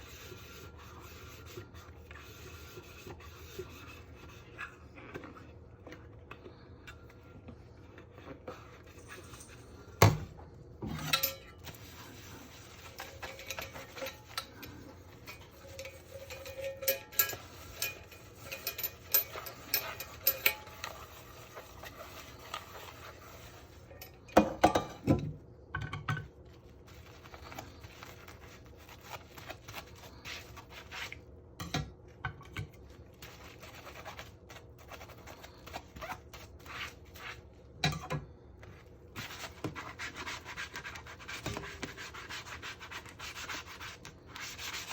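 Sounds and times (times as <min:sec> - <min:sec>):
dishes and cutlery clinking: 0:10.8 - 0:12.0, 0:12.7 - 0:23.1, 0:23.9 - 0:26.4.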